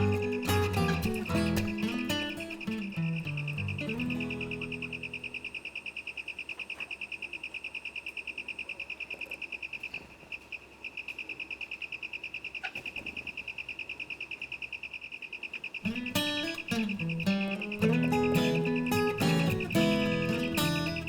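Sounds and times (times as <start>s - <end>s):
guitar music: 0.0s - 5.5s, 15.8s - 21.0s
insect trilling: 0.0s - 12.8s, 13.4s - 21.0s.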